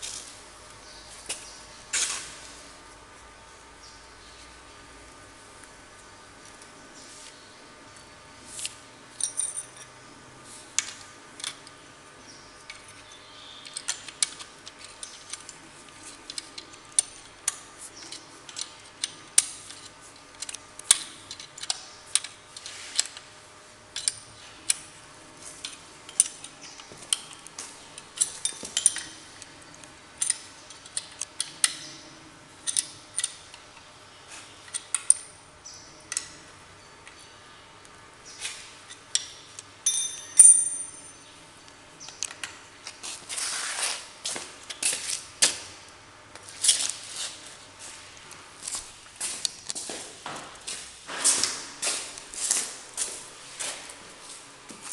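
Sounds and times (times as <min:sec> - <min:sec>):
metal tools clinking: 0:09.2 - 0:10.0, 0:28.0 - 0:29.3, 0:38.9 - 0:41.3.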